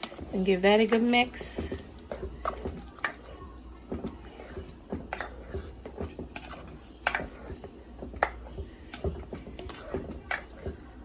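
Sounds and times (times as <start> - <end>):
spoon stirring thick sauce: 0.0 - 11.0.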